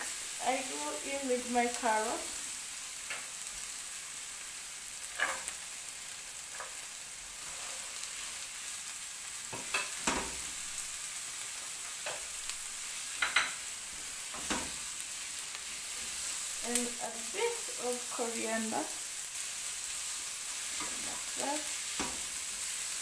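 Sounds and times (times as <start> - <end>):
vegetables sizzling in oil: 0.0 - 23.0.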